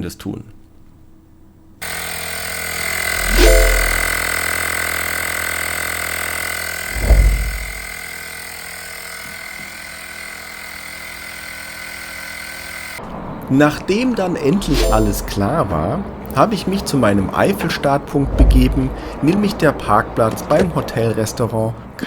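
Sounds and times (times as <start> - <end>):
throttle blips: 3.2 - 4.8.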